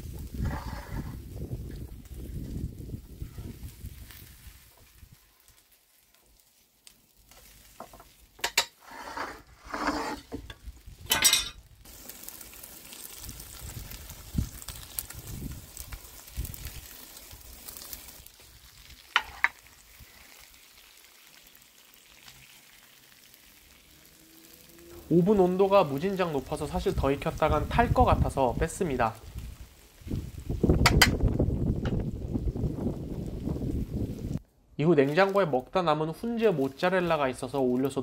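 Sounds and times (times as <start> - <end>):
meat sizzling in a pan: 0.0 - 9.4, 10.0 - 34.4
metal pan knocks and scrapes: 7.9 - 11.6, 30.8 - 31.2.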